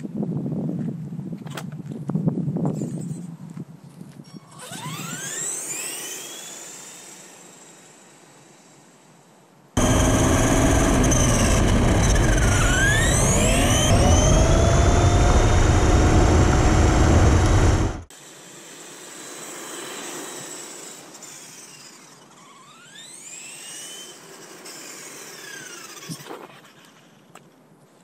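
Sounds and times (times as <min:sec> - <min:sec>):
wind rumble on microphone: 0:00.0 - 0:05.2
electric motor whining: 0:04.3 - 0:08.1, 0:09.8 - 0:18.1.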